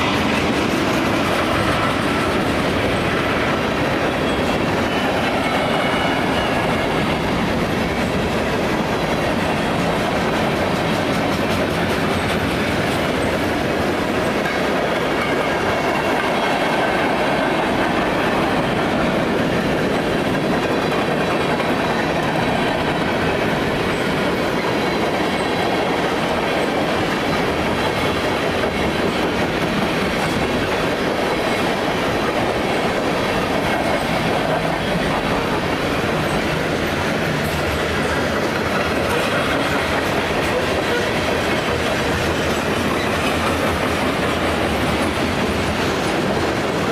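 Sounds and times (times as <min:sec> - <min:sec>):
clickety-clack of wheels over track: 0:00.0 - 0:46.9
train wheels rumbling on rail: 0:00.0 - 0:46.9
faint squeal of wheels on rail: 0:04.1 - 0:07.9, 0:42.5 - 0:43.6.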